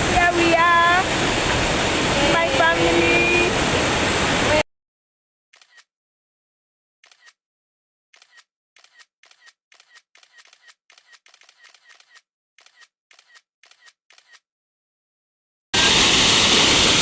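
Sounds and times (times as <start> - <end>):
camera shutter clicks: 8.2 - 14.4.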